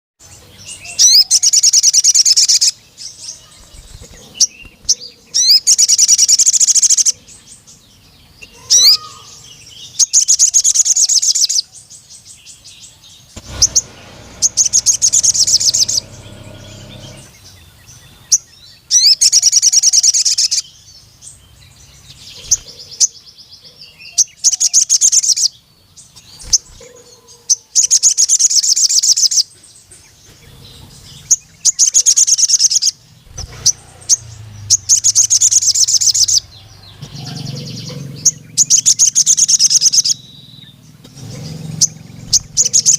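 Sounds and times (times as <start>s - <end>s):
bird high trills: 8.4s - 9.4s, 13.4s - 17.9s
short high bird chirps: 13.4s - 17.5s.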